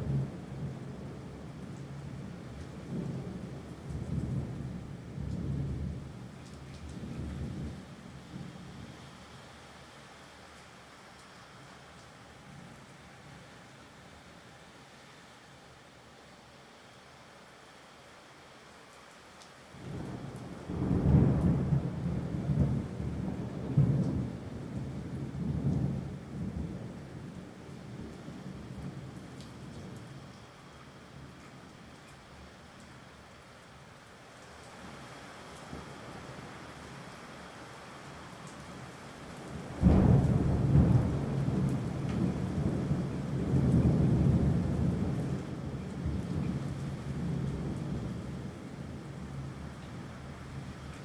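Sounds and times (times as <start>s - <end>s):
rain: 0.0s - 51.0s
rolling thunder: 19.8s - 27.0s, 39.7s - 46.6s.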